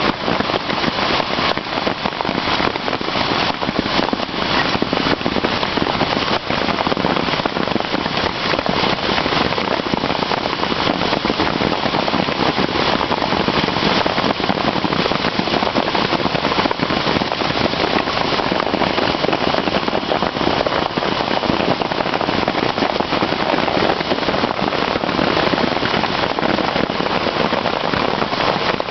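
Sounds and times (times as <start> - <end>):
hailstones clattering: 0.0 - 28.9.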